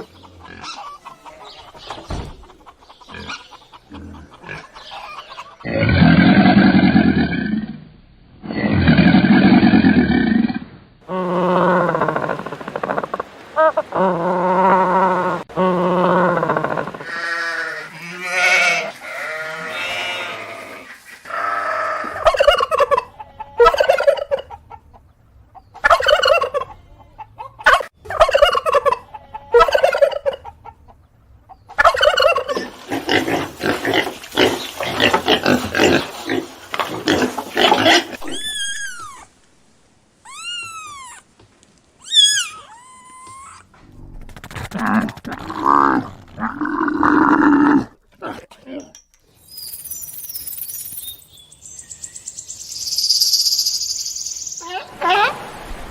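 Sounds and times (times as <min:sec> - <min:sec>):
poultry calls: 0:00.0 - 0:05.7
turkeys gobbling: 0:00.0 - 0:05.7, 0:22.1 - 0:25.1, 0:25.8 - 0:31.0, 0:31.7 - 0:32.8
high thin chirps: 0:49.2 - 0:54.7.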